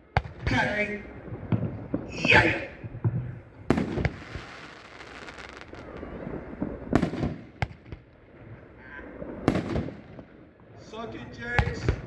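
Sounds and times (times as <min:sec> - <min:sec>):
firework crackling: 0:00.0 - 0:12.0
sharp firework crack: 0:00.2 - 0:08.1, 0:09.3 - 0:10.3
firework boom: 0:01.2 - 0:04.6, 0:05.6 - 0:08.0.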